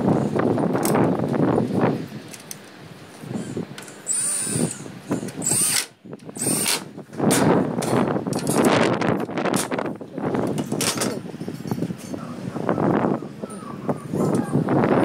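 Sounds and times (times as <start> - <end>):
power drill whining: 3.4 - 6.9
handling and clattering: 6.7 - 12.2.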